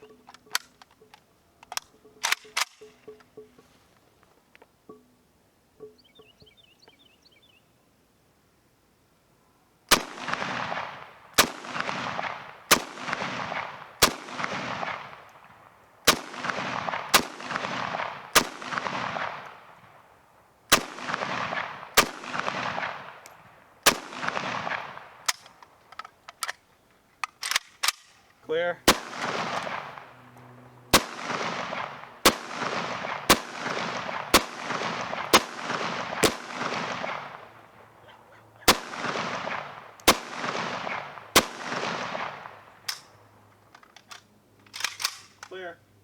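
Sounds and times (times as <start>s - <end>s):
rifle single shots with echo: 9.9s - 26.6s, 27.2s - 43.3s.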